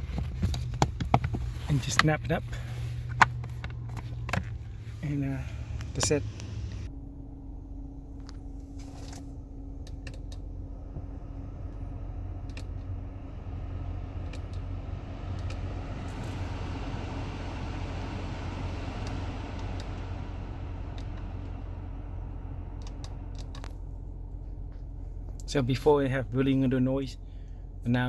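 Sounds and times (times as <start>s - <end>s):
blower fan running: 0.0s - 28.0s
steady low hum: 0.0s - 28.0s
clicks: 15.4s - 15.7s, 22.8s - 23.8s.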